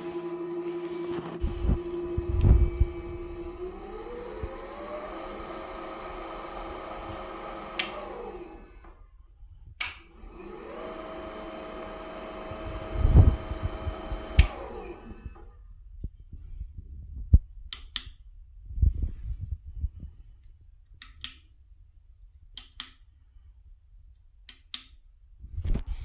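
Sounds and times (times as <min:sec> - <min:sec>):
drill press motor whine: 0:00.0 - 0:09.0, 0:09.8 - 0:15.4
switch click: 0:01.4 - 0:08.9, 0:09.8 - 0:15.4.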